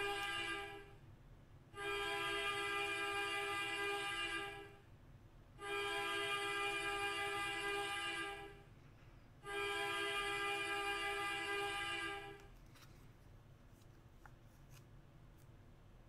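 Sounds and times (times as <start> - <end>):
loud horn chord blast: 5.6 - 8.6, 9.4 - 12.4.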